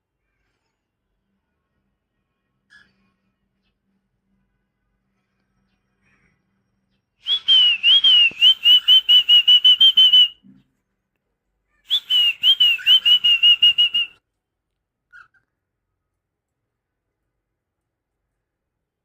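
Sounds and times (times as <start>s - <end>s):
cockatiel whistling: 7.2s - 10.3s, 11.9s - 14.1s.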